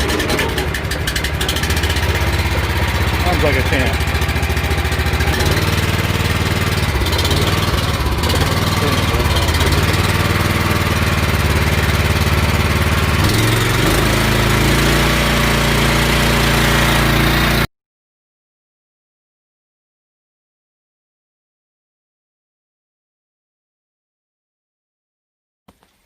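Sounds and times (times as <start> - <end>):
small gasoline engine running: 0.0 - 17.7.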